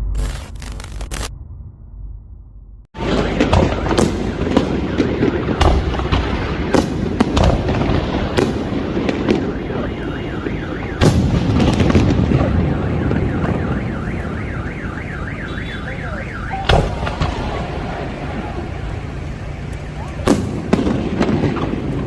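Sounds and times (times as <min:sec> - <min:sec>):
car alarm warbling: 0:03.0 - 0:06.7, 0:08.8 - 0:18.4
fireworks banging and crackling: 0:03.0 - 0:22.0.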